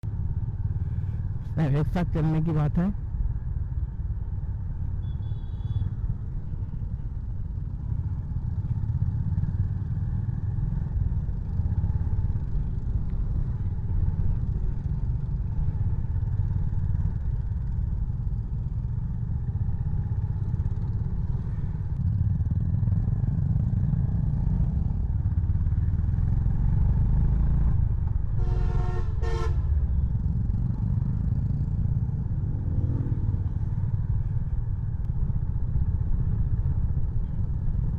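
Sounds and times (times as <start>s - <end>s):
road and wind noise: 0.0s - 37.9s
motorcycle engine running: 3.8s - 37.9s
vehicle horn honking: 28.4s - 29.7s.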